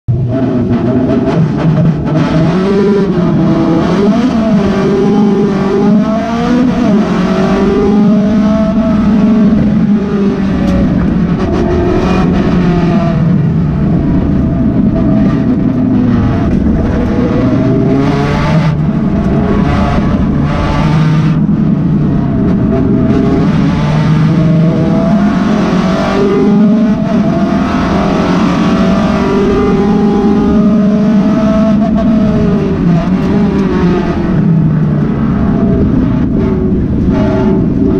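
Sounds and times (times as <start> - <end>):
car engine revving: 0.1 - 37.9.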